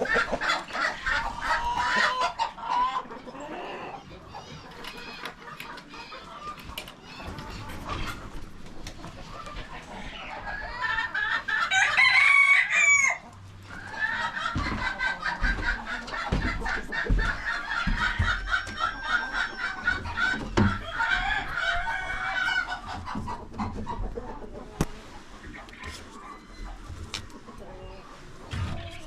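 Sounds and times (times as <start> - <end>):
chickens clucking: 0.0 - 29.0
rooster crowing: 11.7 - 13.2.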